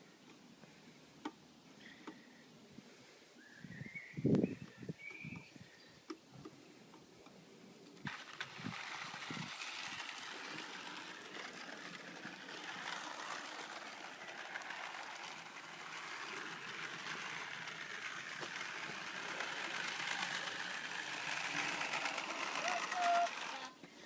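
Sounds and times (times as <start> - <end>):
model train whirring clatter: 7.9 - 24.0.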